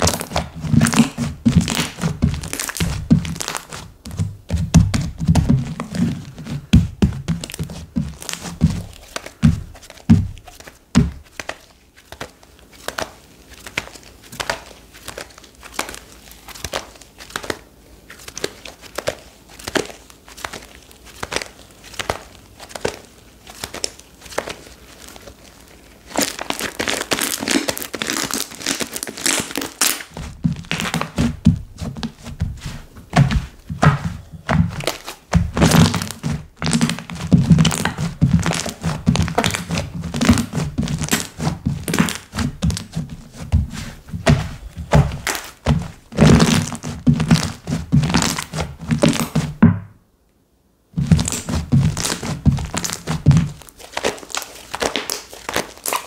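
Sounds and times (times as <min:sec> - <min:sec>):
hands squishing slime: 0:00.0 - 0:49.6, 0:51.0 - 0:56.0
soft thuds: 0:00.4 - 0:11.3, 0:30.1 - 0:49.9.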